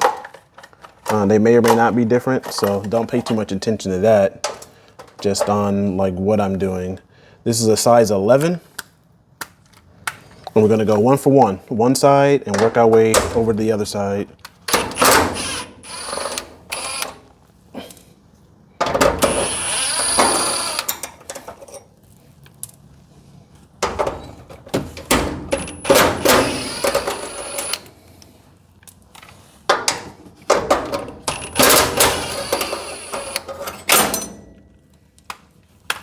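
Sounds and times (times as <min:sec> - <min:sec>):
impact gun hammering bolts: 0:14.7 - 0:17.2, 0:18.8 - 0:21.4, 0:23.8 - 0:27.8, 0:29.7 - 0:34.4.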